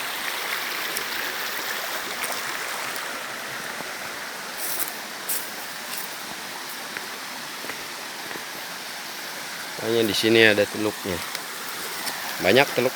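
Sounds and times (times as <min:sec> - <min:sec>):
river water rushing: 0:00.0 - 0:12.9.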